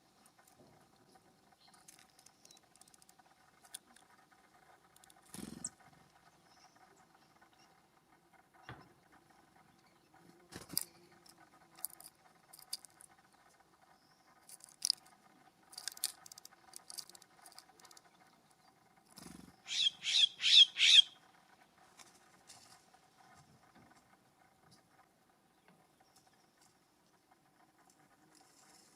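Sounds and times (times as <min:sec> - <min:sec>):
bird giving harsh calls: 0:19.6 - 0:21.2.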